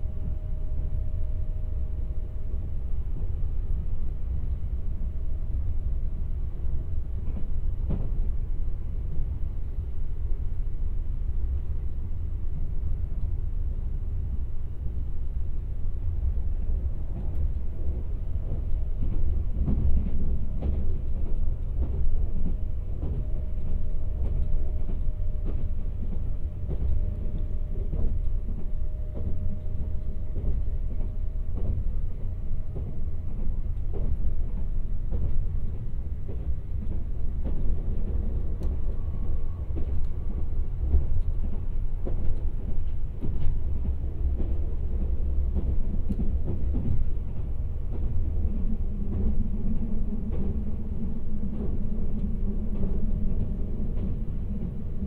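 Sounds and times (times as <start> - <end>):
train rumble inside cabin: 0.0 - 55.0.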